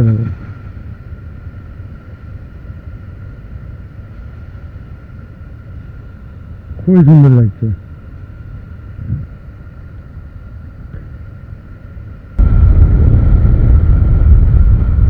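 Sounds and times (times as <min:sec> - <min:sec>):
motorcycle engine rumbling: 0:12.4 - 0:15.0.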